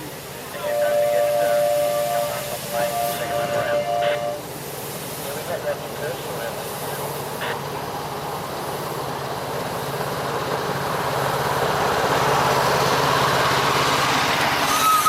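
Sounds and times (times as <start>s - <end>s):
miniature train running: 5.3s - 15.0s.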